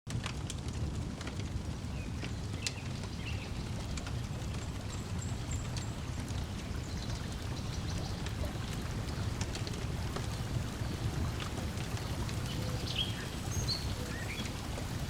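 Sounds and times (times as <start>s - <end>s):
wood fire crackling: 0.1s - 15.0s
breeze: 1.2s - 15.0s
lake water lapping: 6.0s - 15.0s.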